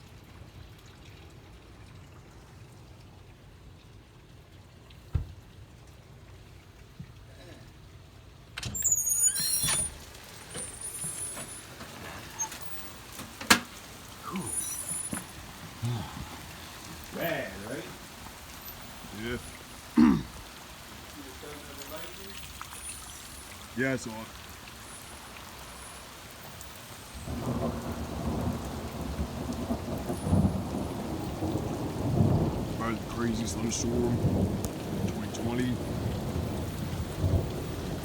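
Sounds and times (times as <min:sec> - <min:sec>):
heavy rain hiss: 0:08.6 - 0:38.0
thunder rumbling: 0:13.8 - 0:19.9, 0:27.1 - 0:38.0.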